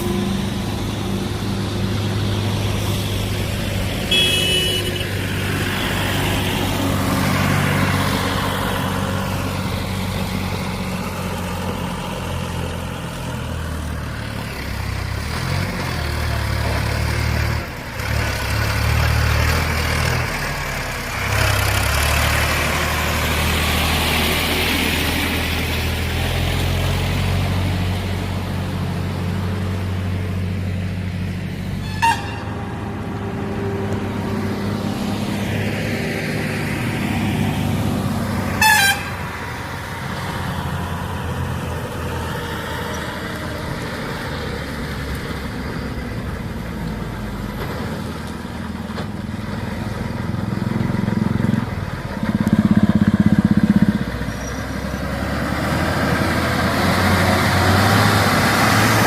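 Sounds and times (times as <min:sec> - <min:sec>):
truck diesel engine rumbling: 0:00.0 - 0:59.0
truck horn blast: 0:04.0 - 0:06.0, 0:31.8 - 0:32.8, 0:38.5 - 0:39.3.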